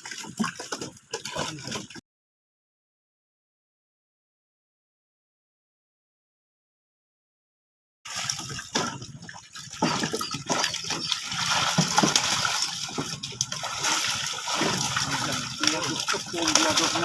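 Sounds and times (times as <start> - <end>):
water splashing and gushing: 0.0 - 2.0, 8.1 - 17.0.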